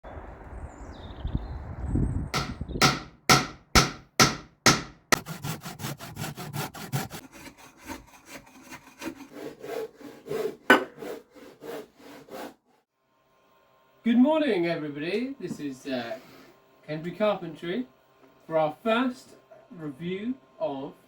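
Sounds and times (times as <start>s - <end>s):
hand tool strokes on wood: 4.7s - 12.8s.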